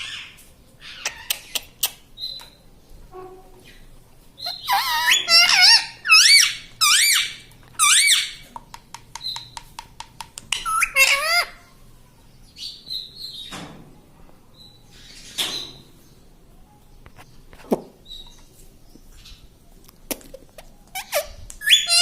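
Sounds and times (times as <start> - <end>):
parakeet screeching calls: 4.4 - 8.4, 10.5 - 11.6, 21.0 - 22.0
parakeet clicks: 8.6 - 10.7.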